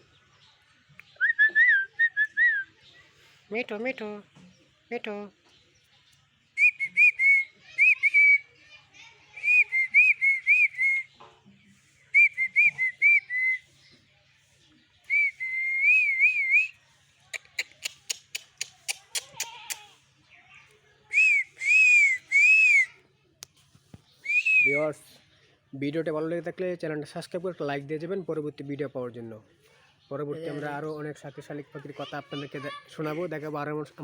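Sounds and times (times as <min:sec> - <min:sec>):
wavering whistles: 0:01.2 - 0:02.7, 0:06.6 - 0:08.5, 0:09.4 - 0:11.1, 0:12.1 - 0:13.7, 0:15.1 - 0:16.7, 0:21.1 - 0:23.0, 0:24.2 - 0:24.8
sharp clicks: 0:17.4 - 0:19.9.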